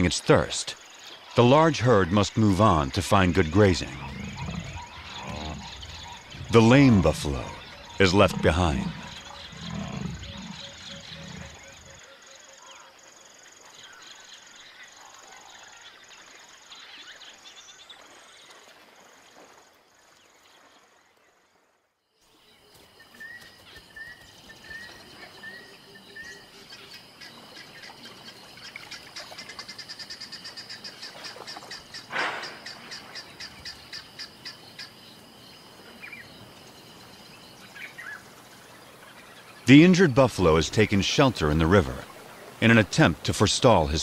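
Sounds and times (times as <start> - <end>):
fast rhythmic chirping chorus: 2.1 - 12.0.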